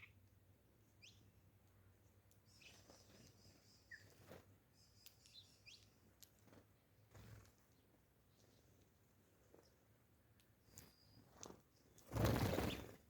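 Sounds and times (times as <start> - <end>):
faint bird chirps and whistles: 0.0 - 0.2, 0.9 - 1.3, 2.4 - 6.0, 10.6 - 13.0
soft clicks: 5.0 - 6.4.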